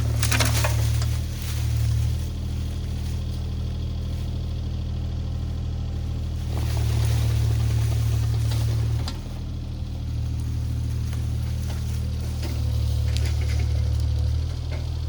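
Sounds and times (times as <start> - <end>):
sharp cracks: 0.0 - 1.4
diesel engine under load: 0.0 - 15.0.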